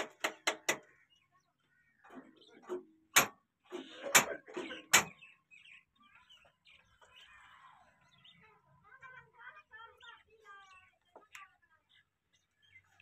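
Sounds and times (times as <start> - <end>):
sharp knocks: 0.0 - 0.9, 2.2 - 3.4, 4.0 - 5.2
faint voices: 5.9 - 13.0.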